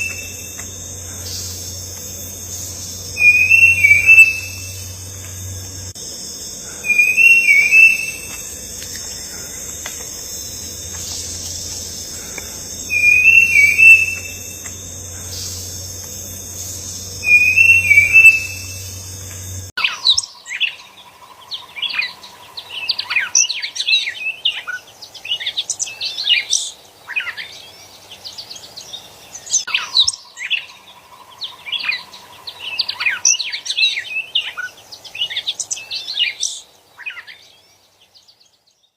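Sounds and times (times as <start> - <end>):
low hum: 0.0 - 19.7
steady high buzz: 0.0 - 19.8
bird warbling call: 0.0 - 20.0
birds chirping and twittering: 0.0 - 38.9.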